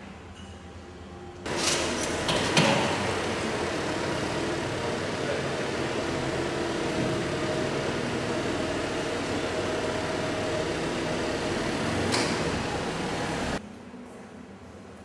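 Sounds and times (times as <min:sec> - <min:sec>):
car engine idling: 0:01.8 - 0:13.6.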